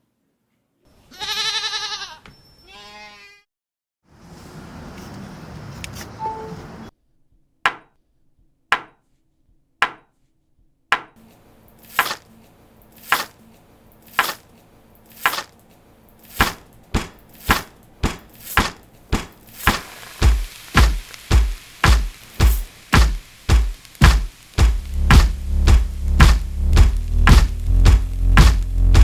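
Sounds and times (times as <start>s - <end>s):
sharp chopping knocks in a beat: 7.7s - 7.9s, 8.7s - 9.0s, 9.8s - 10.1s, 10.9s - 11.2s, 16.4s - 29.0s.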